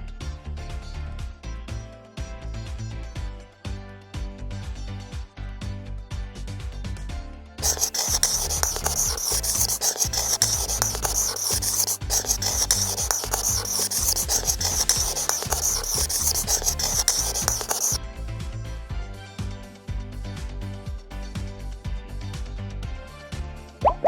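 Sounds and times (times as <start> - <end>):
background music: 0.0 - 24.0
loud hissing scraping: 7.6 - 18.0.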